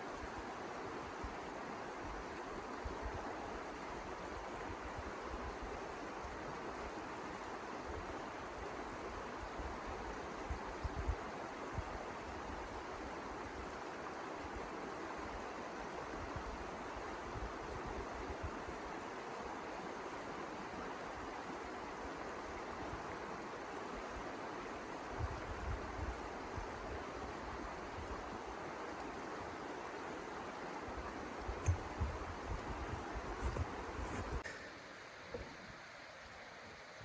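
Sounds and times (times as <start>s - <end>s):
wind rumbling on microphone: 31.2s - 34.4s
soft knocks: 31.3s - 34.4s.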